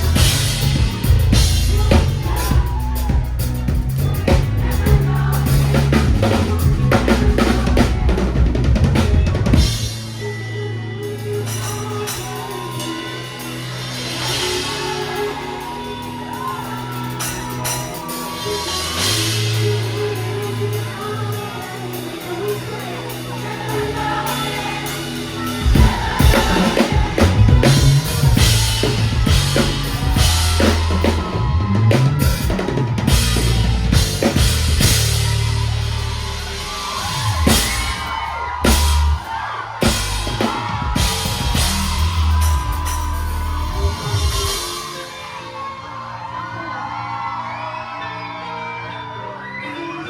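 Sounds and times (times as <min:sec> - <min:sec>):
low bass notes: 0:00.0 - 0:11.4, 0:24.0 - 0:44.7
person singing: 0:00.0 - 0:34.3
live band music: 0:00.0 - 0:47.3.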